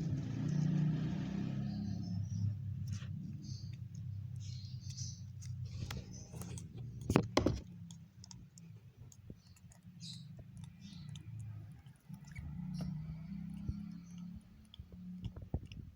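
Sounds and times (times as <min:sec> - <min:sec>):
bird chicks squeaking: 0:01.6 - 0:07.2, 0:09.3 - 0:15.1
clicks and taps of hand-feeding: 0:03.7 - 0:15.9.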